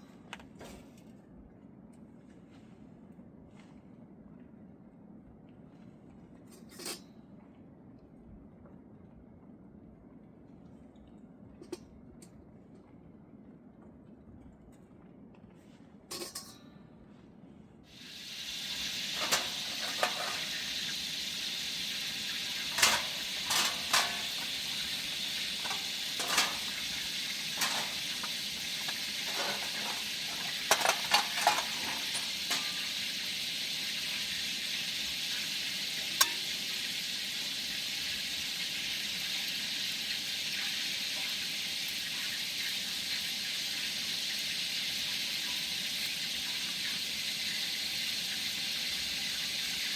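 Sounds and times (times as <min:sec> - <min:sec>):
food sizzling in a pan: 0:17.9 - 0:49.9
utensil scraping a pan: 0:18.8 - 0:20.9, 0:22.2 - 0:33.0.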